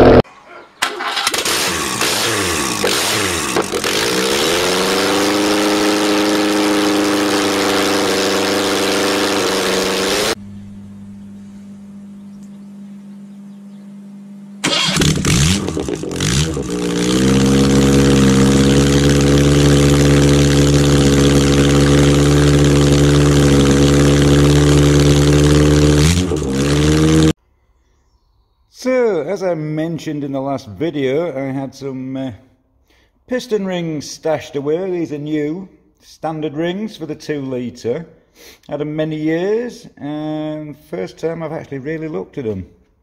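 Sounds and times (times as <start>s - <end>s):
car engine starting and idling: 0.8s - 10.8s, 14.6s - 27.4s.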